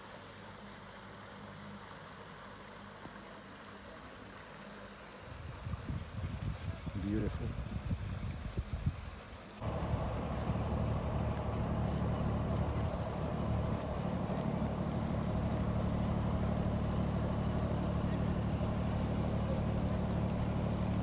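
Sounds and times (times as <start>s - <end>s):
boat engine droning: 9.6s - 21.0s.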